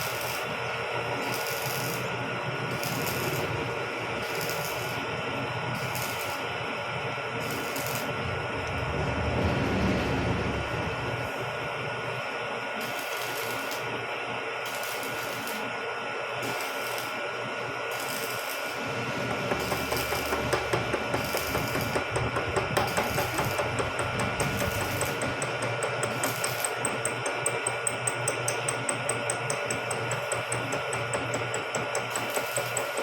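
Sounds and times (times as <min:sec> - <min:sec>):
milling machine motor whine: 0:00.0 - 0:33.0
cutter knocking rhythmically: 0:19.1 - 0:33.0.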